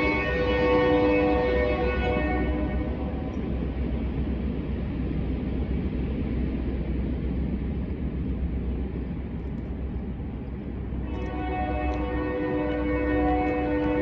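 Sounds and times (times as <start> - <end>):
locomotive horn chord: 0.0 - 3.5, 10.9 - 14.0
diesel locomotive rumble: 0.0 - 14.0.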